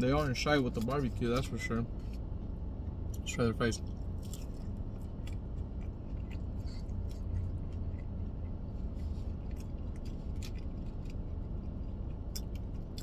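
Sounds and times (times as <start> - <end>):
low hum inside car cabin: 0.0 - 13.0
person chewing fries: 3.8 - 13.0.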